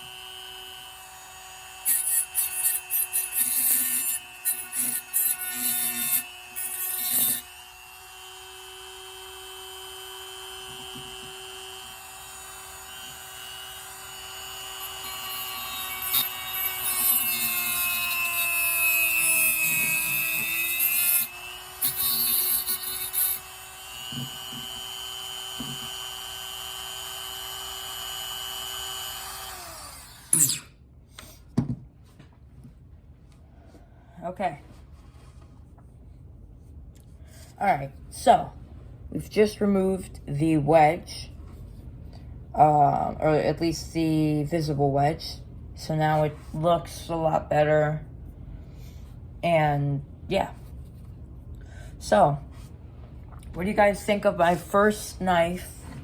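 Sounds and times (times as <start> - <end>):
rotary tool whining: 0.0 - 31.3.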